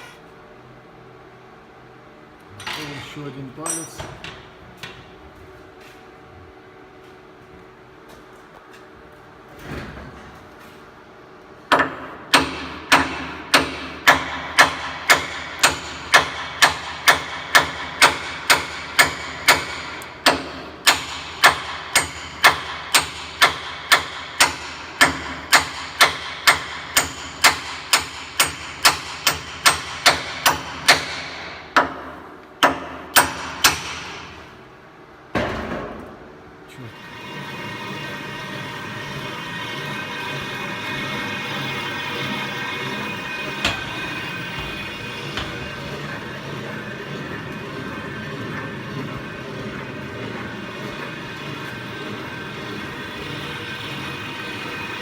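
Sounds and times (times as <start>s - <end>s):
hammer striking steel pin: 43.5s - 46.1s.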